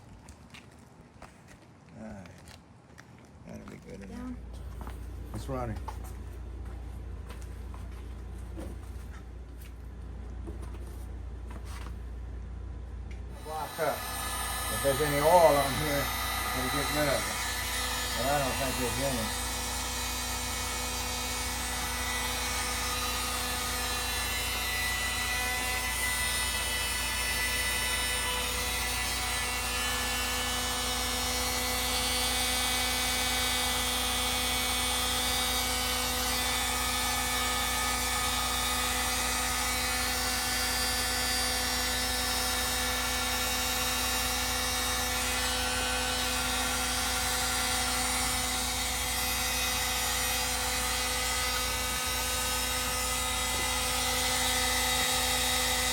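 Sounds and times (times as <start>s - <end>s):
motor-driven machine humming: 13.2s - 55.9s.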